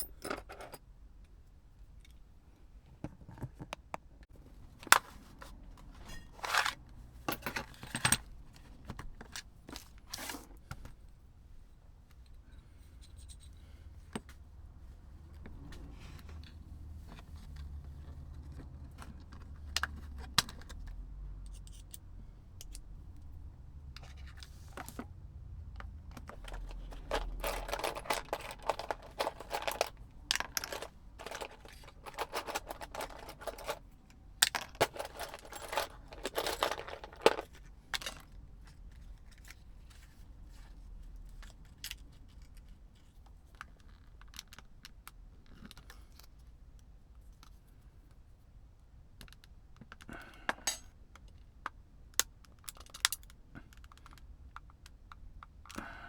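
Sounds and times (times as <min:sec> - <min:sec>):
small plastic parts clicking and rattling: 0:25.8 - 0:48.2, 0:49.1 - 0:55.9.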